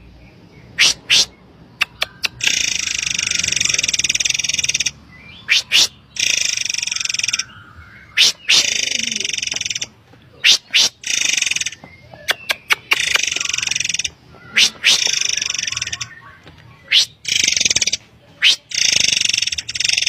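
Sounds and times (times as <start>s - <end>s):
bird whistles and buzzy trills: 0.7s - 20.0s.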